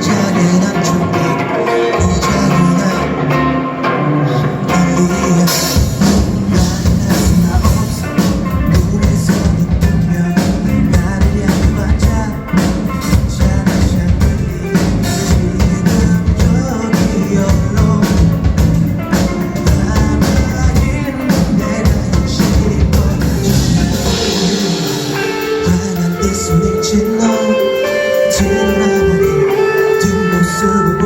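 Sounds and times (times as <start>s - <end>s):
bass guitar: 0.0s - 31.0s
drum kit: 0.0s - 31.0s
rock band playing: 0.0s - 31.0s.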